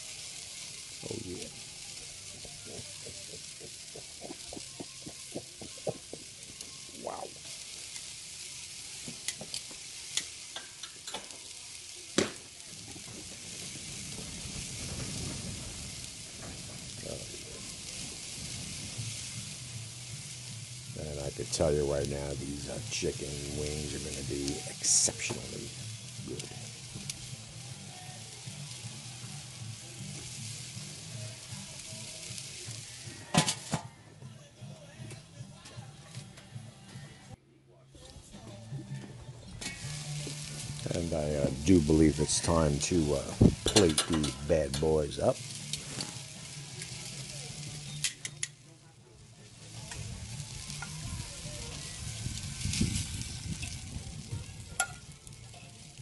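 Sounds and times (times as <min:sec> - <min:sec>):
chicken wings sizzling on grill: 0:00.0 - 0:37.4, 0:38.0 - 0:56.0
metal clanks: 0:43.7 - 0:44.8.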